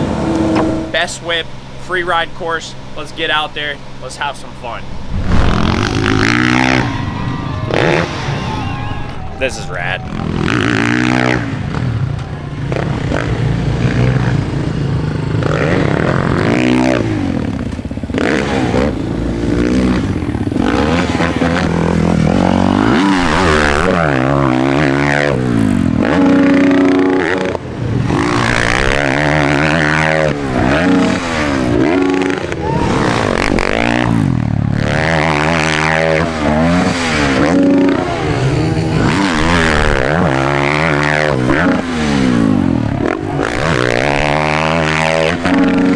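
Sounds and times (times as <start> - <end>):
dirt bike engines revving: 0.0 - 45.9.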